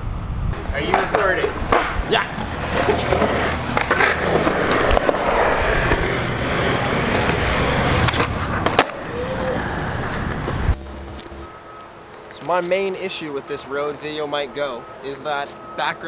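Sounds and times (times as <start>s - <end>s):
skateboard wheels rolling on pavement: 0.5s - 15.6s
skateboard clacking: 0.6s - 10.8s.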